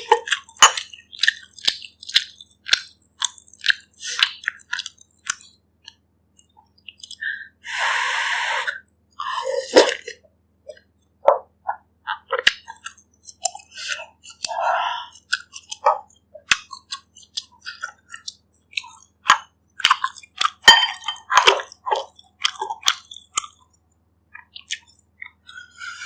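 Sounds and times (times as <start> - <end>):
person chewing food: 0.0 - 26.0
wet mouth sounds: 6.4 - 26.0.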